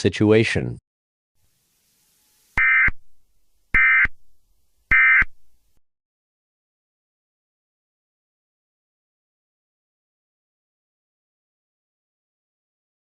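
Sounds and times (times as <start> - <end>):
buzzing digital data tones: 1.5 - 4.2, 4.9 - 5.4.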